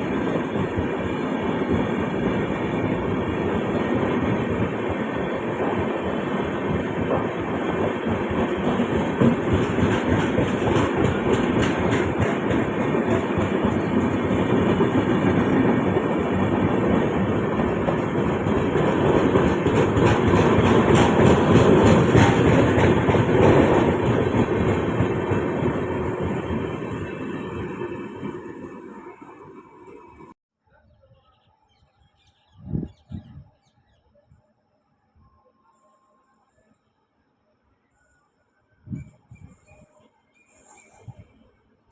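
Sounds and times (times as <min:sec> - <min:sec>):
train wheels rumbling on rail: 0:00.0 - 0:30.4
wheels clicking over rail joints: 0:07.0 - 0:15.7, 0:17.6 - 0:25.5.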